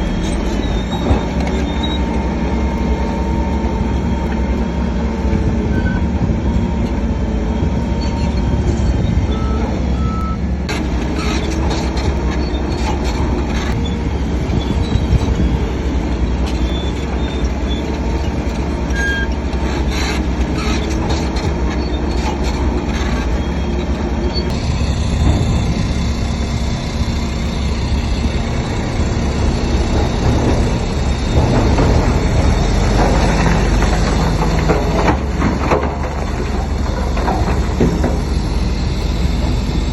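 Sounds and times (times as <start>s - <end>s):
high squeaks: 0.0s - 3.0s, 11.2s - 34.4s
bulldozer diesel engine: 0.0s - 39.9s
steel tracks clanking: 0.0s - 39.9s.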